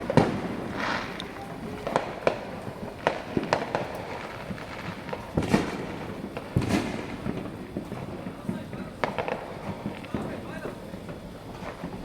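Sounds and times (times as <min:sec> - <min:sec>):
fireworks bangs and pops: 0:00.0 - 0:12.0
fizzing hiss: 0:00.1 - 0:12.0.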